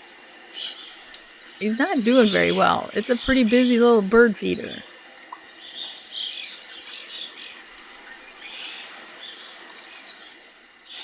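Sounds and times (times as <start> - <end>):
faint steady hiss: 0.0 - 11.0
birds chirping: 1.6 - 4.8.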